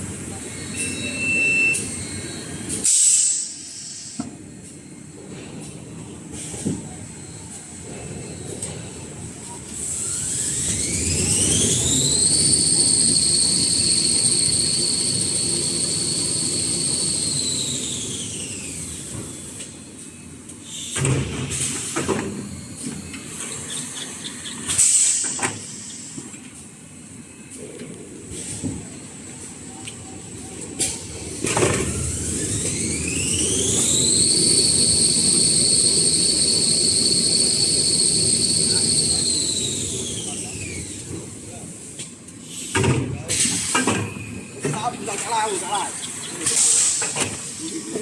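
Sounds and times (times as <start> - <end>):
machine whine: 9.9 - 19.5, 30.6 - 41.1.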